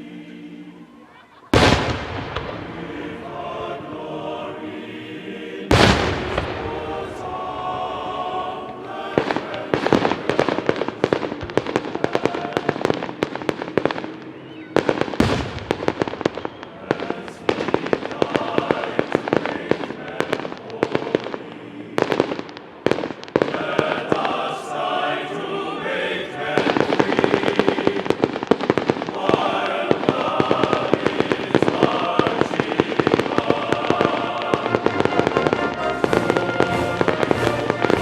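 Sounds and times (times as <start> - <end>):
fireworks bangs and crackles: 1.5 - 3.5, 5.6 - 24.6, 25.3 - 38.0
background music: 31.8 - 38.0.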